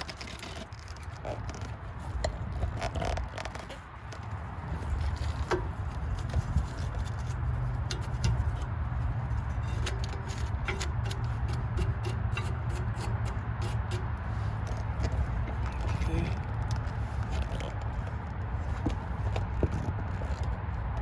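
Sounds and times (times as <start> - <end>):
steady low rumble: 3.9 - 21.0
wire brush scraping metal: 4.7 - 16.2.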